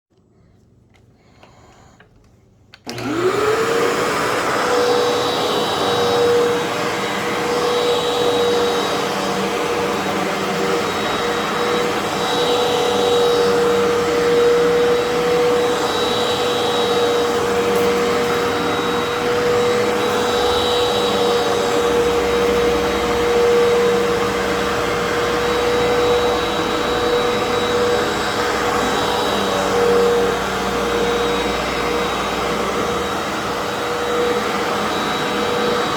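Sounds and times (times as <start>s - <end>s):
vacuum cleaner motor whine: 2.8s - 35.9s
vacuum rushing over carpet: 2.8s - 35.9s.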